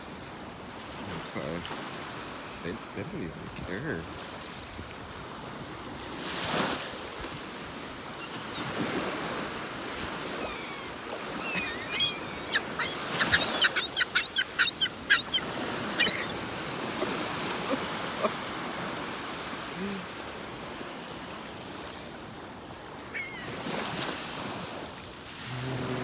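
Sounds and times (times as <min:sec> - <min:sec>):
seagulls calling: 0:07.8 - 0:20.3, 0:22.9 - 0:23.9
breaking surf: 0:23.6 - 0:26.0.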